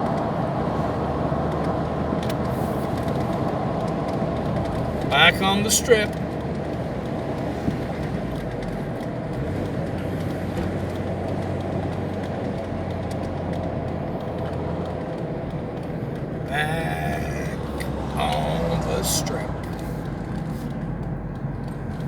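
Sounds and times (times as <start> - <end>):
car engine hum: 0.0 - 22.0
road noise: 0.0 - 22.0.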